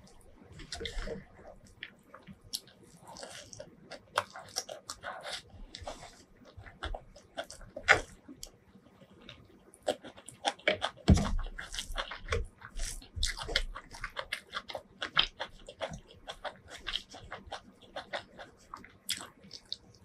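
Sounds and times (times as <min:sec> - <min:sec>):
hands squishing rice: 0:00.0 - 0:08.5, 0:09.1 - 0:20.0
wet chewing smacks: 0:09.3 - 0:20.0.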